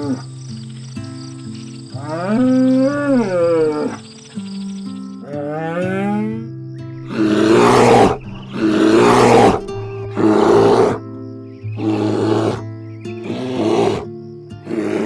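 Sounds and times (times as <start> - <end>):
background music: 5.2 - 15.0
bear growling and roaring: 7.0 - 11.0, 11.8 - 14.1, 14.7 - 15.0.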